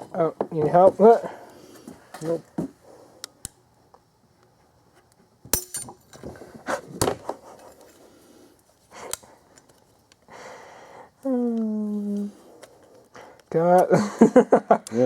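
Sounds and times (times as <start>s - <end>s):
metal tools clinking: 5.5s - 6.3s.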